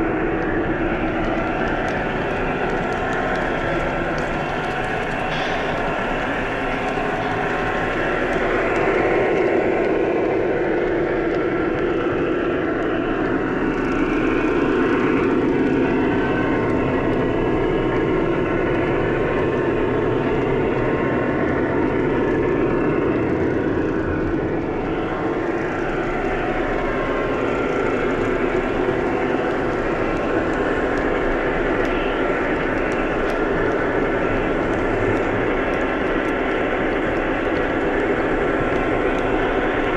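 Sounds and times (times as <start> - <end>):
model train wheels whirring on rails: 23.9 - 39.9.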